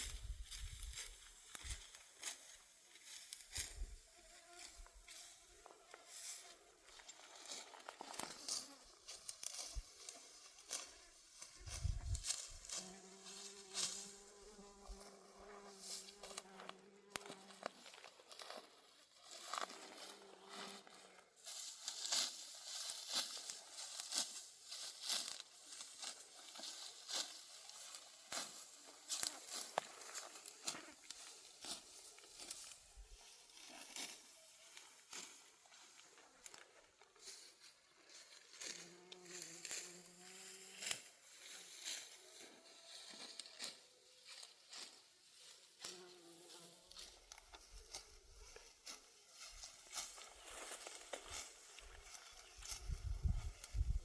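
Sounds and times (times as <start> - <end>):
crisp rustles and crackles: 0.0 - 54.0
fly buzzing: 10.7 - 17.6, 38.7 - 41.0.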